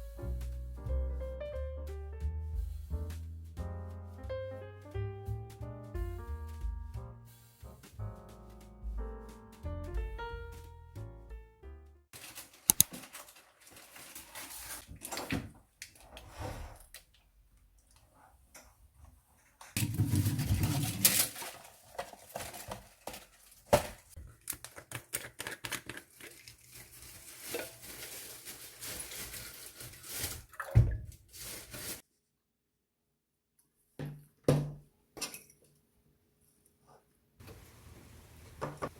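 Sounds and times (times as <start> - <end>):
food rustling: 12.2 - 15.2, 19.8 - 32.0
dishes and cutlery clattering: 19.7 - 22.8.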